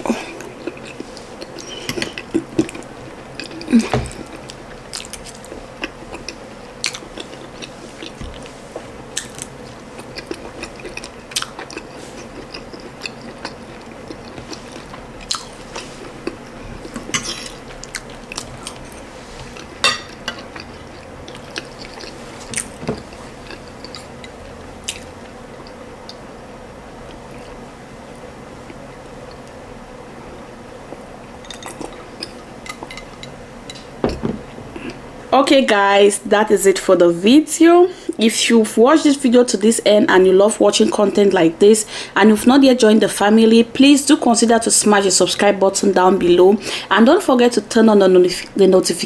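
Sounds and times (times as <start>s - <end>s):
person chewing wetly: 0.0s - 26.2s, 30.9s - 33.2s
faint steady hum: 0.0s - 49.0s.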